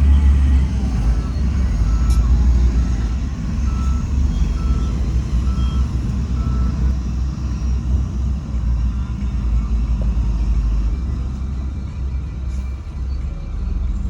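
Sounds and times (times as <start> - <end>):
reversing alarm beeping: 0.0 - 7.0
diesel engine rumble: 0.0 - 14.0.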